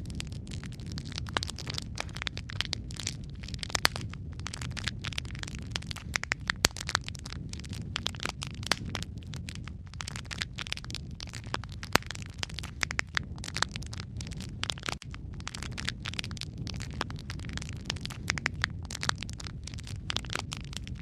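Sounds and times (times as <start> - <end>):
low rumble of flames: 0.0 - 21.0
sharp pops of fire: 0.0 - 21.0
wood fire crackling: 0.0 - 21.0.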